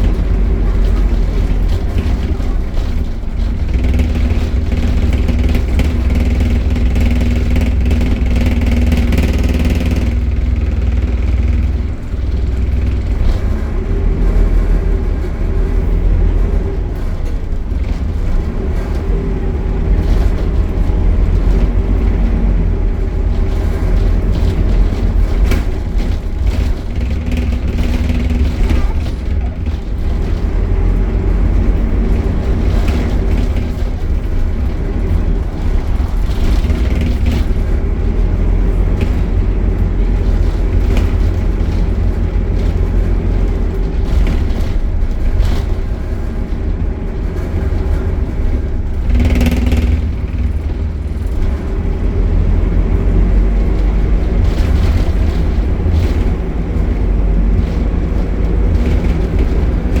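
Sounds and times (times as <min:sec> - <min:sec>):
bus engine running: 0:00.0 - 1:00.0
light knocks and rattles: 0:00.0 - 1:00.0.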